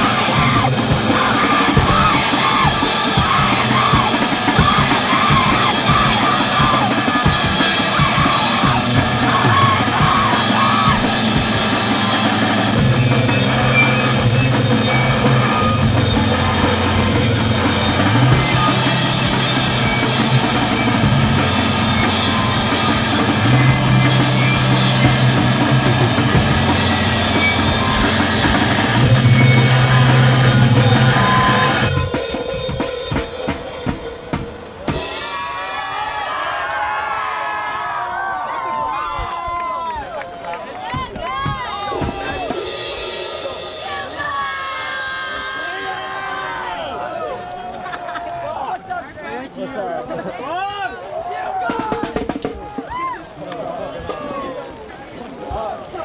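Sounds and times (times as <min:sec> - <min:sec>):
screamed vocals: 0:00.0 - 0:32.8, 0:40.8 - 0:47.5
held bass notes: 0:00.0 - 0:35.0
distorted rock instruments: 0:00.0 - 0:35.8, 0:40.9 - 0:45.0
pounding drum kit: 0:00.0 - 0:36.4, 0:40.7 - 0:46.2, 0:51.6 - 0:53.3
crowd noise: 0:00.0 - 0:56.0.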